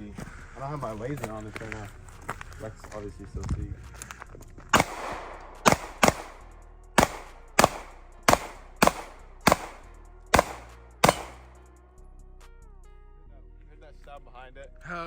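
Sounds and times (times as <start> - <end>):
gunshots with echo: 4.7 - 11.6.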